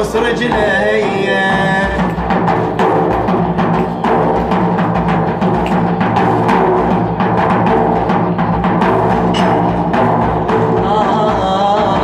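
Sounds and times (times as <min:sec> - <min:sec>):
drum strokes: 0:00.0 - 0:12.0
held melodic accompaniment: 0:00.0 - 0:12.0.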